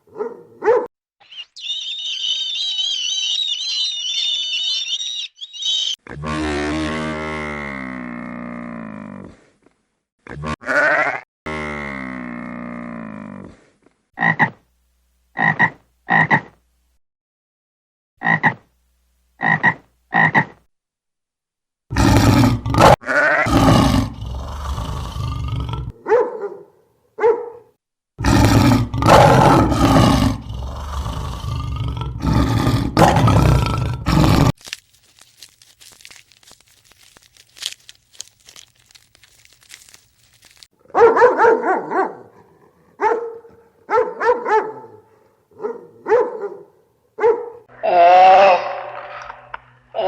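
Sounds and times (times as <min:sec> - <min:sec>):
animal calls: 0:01.2 - 0:06.0.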